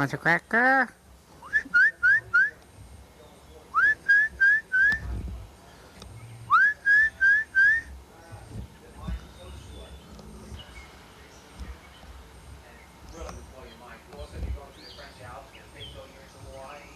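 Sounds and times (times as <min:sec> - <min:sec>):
parrot whistling: 0:06.5 - 0:07.9.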